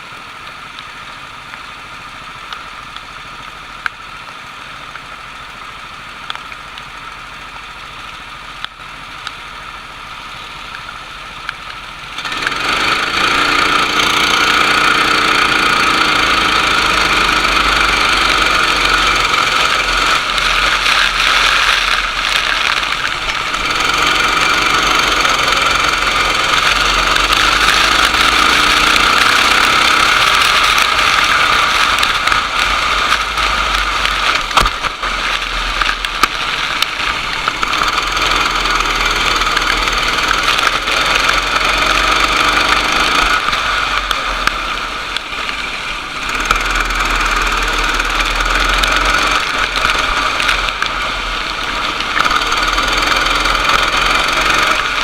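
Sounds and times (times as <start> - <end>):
go-kart engine revving: 12.1 - 55.0.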